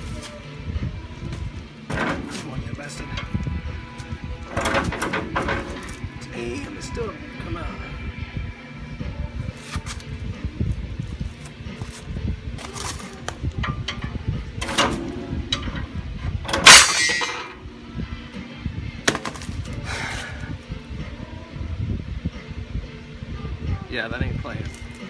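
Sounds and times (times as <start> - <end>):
metal clangs on coil spring: 1.9 - 6.2, 12.8 - 17.8.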